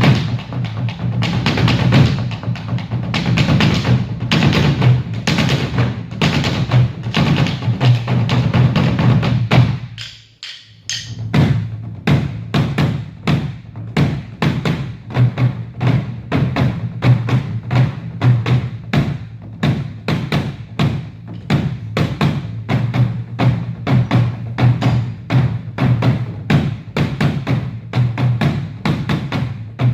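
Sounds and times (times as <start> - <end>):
percussion ensemble playing: 0.0 - 12.5.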